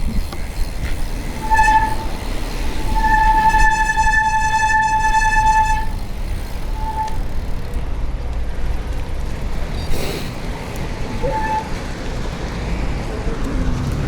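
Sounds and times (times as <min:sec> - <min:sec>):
horn blasts: 0:01.3 - 0:06.0, 0:11.2 - 0:11.7.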